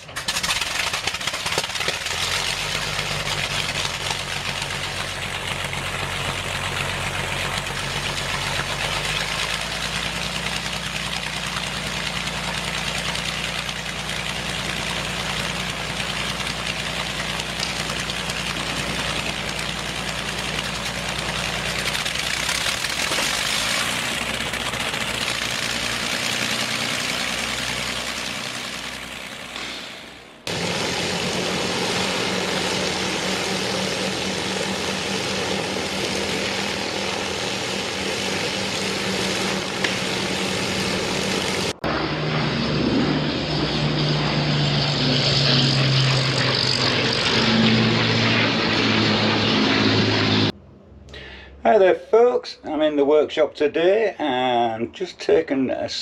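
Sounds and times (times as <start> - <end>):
engine running: 0.0 - 51.4.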